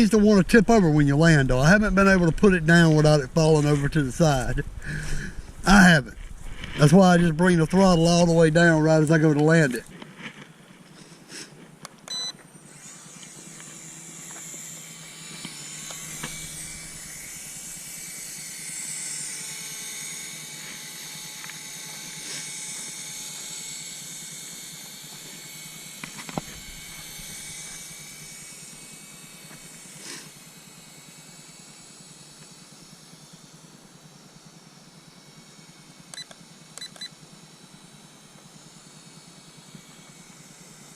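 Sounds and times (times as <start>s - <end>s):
toy helicopter rotor whining: 0.0s - 40.9s
click: 36.1s - 37.1s.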